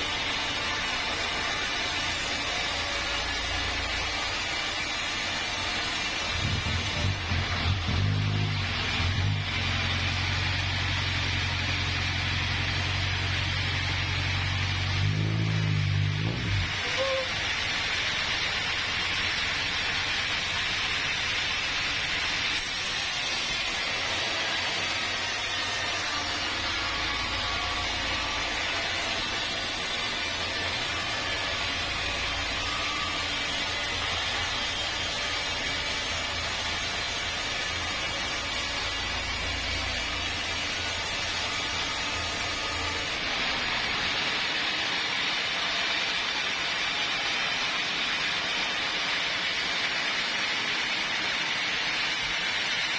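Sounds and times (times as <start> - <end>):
sawmill machinery hiss: 0.0 - 52.9
low machinery hum: 6.4 - 22.3.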